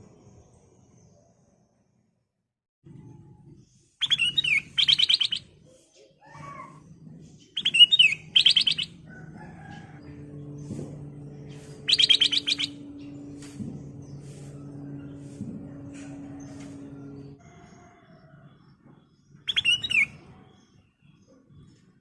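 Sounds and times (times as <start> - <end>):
soft low bird calls: 3.6 - 10.2, 11.1 - 17.4
bulbul singing: 4.0 - 5.6, 7.4 - 17.4, 19.2 - 21.2
low steady hum: 8.9 - 17.4.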